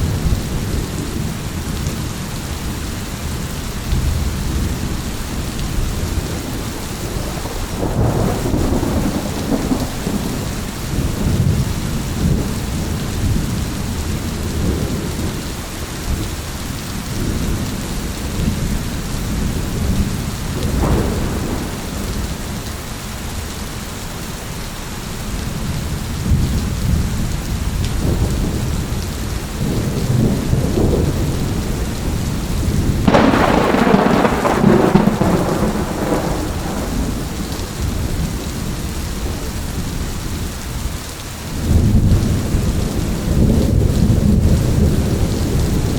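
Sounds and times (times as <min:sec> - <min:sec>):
heavy rain: 0:00.0 - 0:45.9
rolling thunder: 0:03.9 - 0:16.4, 0:17.0 - 0:22.9, 0:25.6 - 0:45.9
sharp thunderclap: 0:06.2 - 0:13.4, 0:20.6 - 0:22.6, 0:29.6 - 0:38.7.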